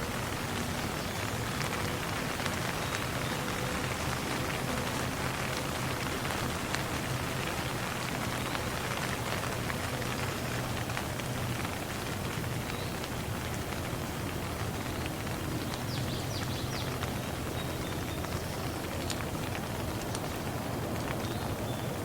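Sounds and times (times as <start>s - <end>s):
raindrop taps: 0.0s - 22.0s
steady rainfall: 0.0s - 22.0s.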